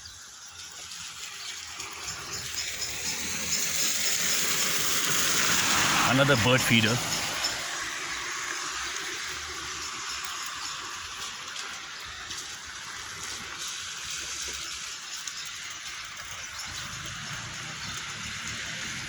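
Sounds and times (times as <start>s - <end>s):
light drizzling rain: 0.0s - 19.0s.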